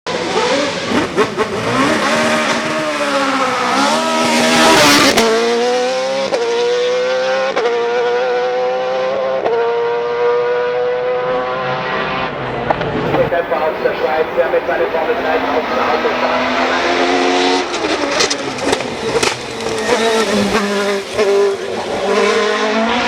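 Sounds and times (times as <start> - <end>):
racing car engine revving: 0.1 - 23.0
gear change cracks: 17.5 - 20.5.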